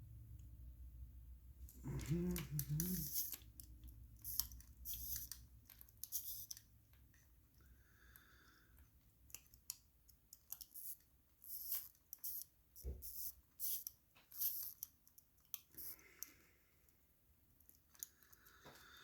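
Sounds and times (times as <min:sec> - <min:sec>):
small metal clicks of watch tools: 0:02.0 - 0:07.3, 0:08.7 - 0:17.0, 0:17.6 - 0:18.8.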